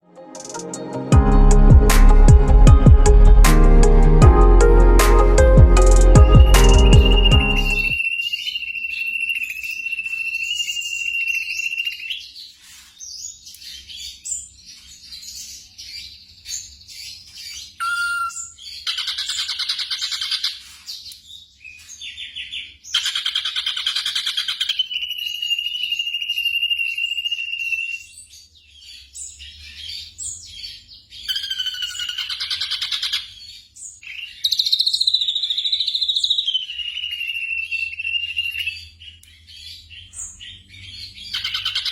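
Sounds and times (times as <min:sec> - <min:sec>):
high whistle-like bird tone: 0:06.2 - 0:12.1, 0:17.8 - 0:18.6
bird harsh chattering calls: 0:22.9 - 0:28.0, 0:31.2 - 0:33.4, 0:40.0 - 0:41.9.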